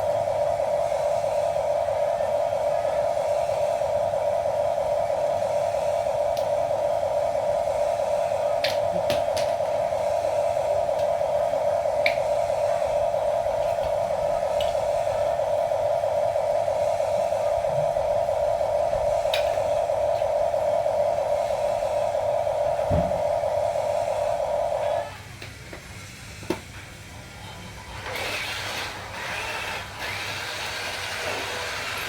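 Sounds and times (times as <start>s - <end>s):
small electric motor whirring: 28.0s - 32.0s.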